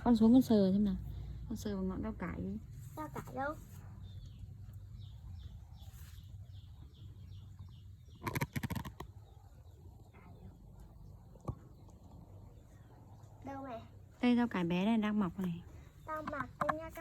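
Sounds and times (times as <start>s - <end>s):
small bird chirping: 2.3s - 14.0s.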